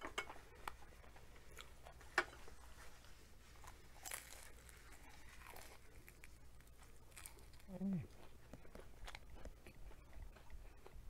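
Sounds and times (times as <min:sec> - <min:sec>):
biting and chewing crunchy food: 0:03.5 - 0:11.0.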